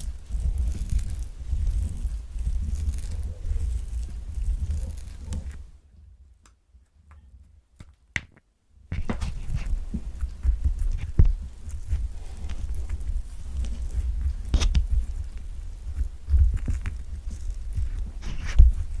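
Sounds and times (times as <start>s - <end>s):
fingers scratching orange peel: 0.0s - 5.7s, 9.0s - 19.0s
orange rolled and tapped: 7.8s - 11.4s.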